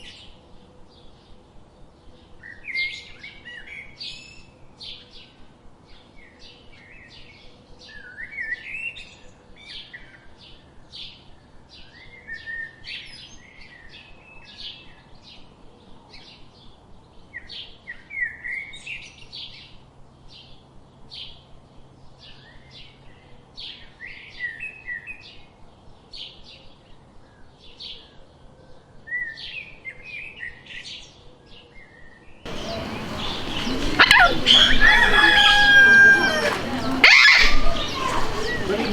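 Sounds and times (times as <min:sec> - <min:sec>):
rising whistles: 0:32.5 - 0:38.9
small birds chirping: 0:32.5 - 0:38.9.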